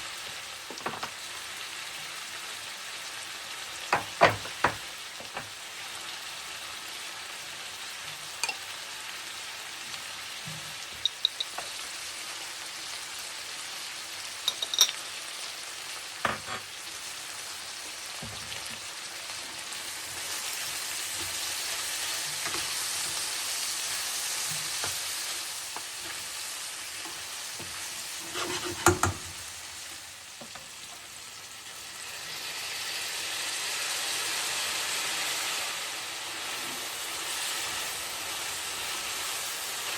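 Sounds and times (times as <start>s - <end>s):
food sizzling in a pan: 0.0s - 39.9s
utensil knocking against pan: 28.4s - 29.3s.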